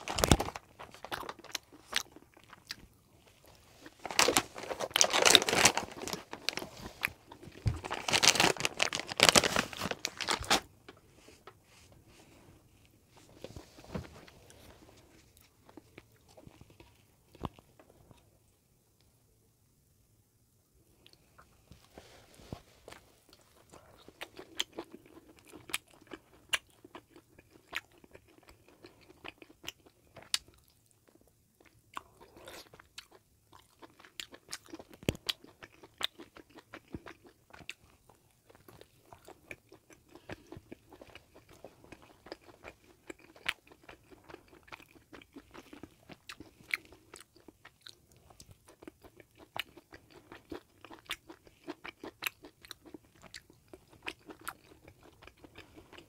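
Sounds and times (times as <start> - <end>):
chewing and biting sandwich: 23.2 - 56.0.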